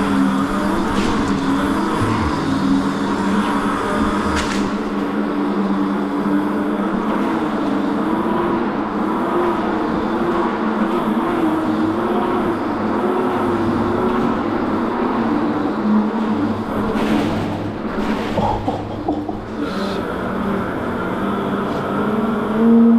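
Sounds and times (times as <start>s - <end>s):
mini bike motor humming: 0.0s - 5.2s
road noise: 0.0s - 7.1s.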